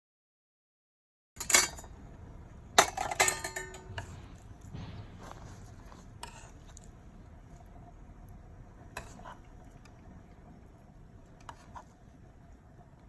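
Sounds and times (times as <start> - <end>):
utensils clinking against cookware: 1.4 - 1.9, 2.8 - 4.2.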